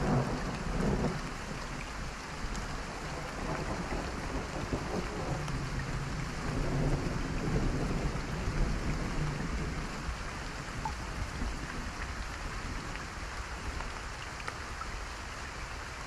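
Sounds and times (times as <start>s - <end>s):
low thunder rumble: 0.0s - 1.8s, 2.7s - 12.0s
steady rain falling: 0.0s - 16.0s.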